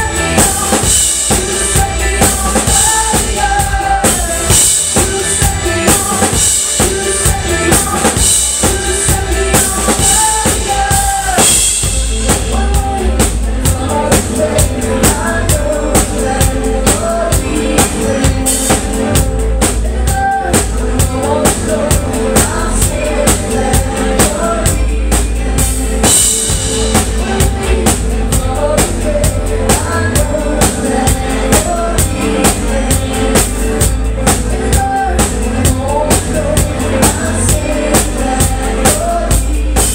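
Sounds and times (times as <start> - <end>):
drum kit beat: 0.0 - 39.9
live pop-rock band: 0.0 - 39.9.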